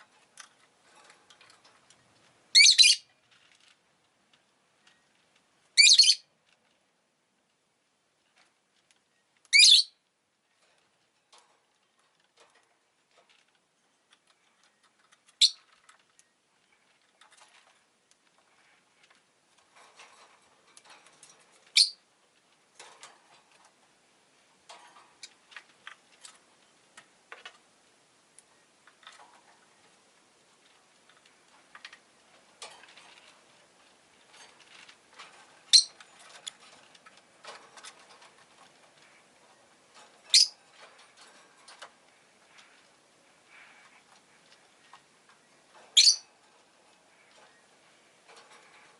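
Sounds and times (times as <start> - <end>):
lovebird shrill calls: 2.5 - 3.0, 5.8 - 6.2, 9.5 - 9.9, 21.8 - 22.0, 35.7 - 35.9, 40.3 - 40.5, 46.0 - 46.2.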